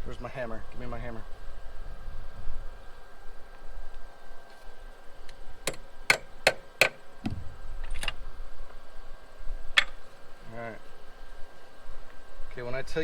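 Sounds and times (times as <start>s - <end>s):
dull knock: 6.8s - 7.6s.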